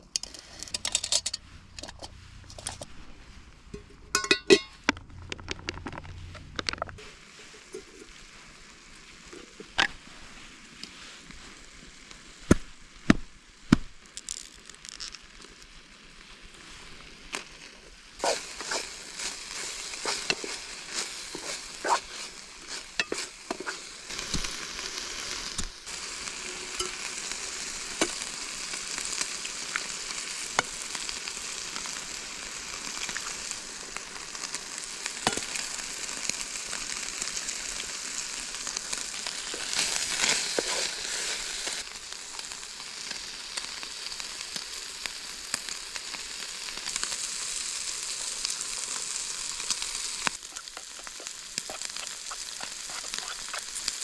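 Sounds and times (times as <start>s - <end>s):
food sizzling in a pan: 5.7s - 54.0s.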